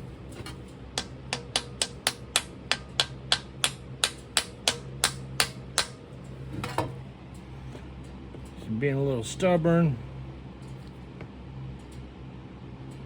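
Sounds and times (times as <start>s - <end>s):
sharp tapping on casting pattern: 0.4s - 6.0s.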